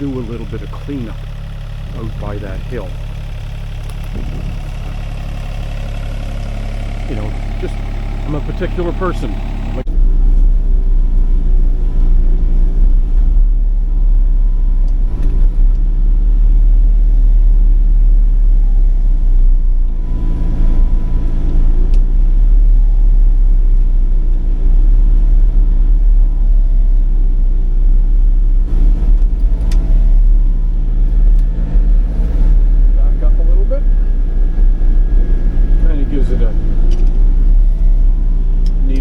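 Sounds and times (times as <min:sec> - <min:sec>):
diesel engine droning: 0:00.0 - 0:39.0.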